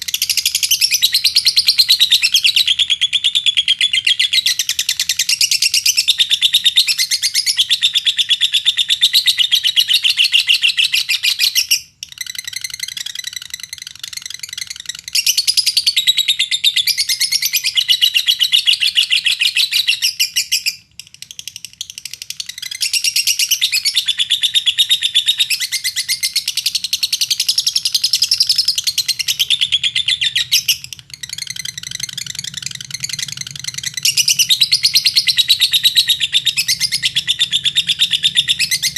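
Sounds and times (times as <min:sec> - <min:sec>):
lovebird chattering: 0:19.7 - 0:38.9.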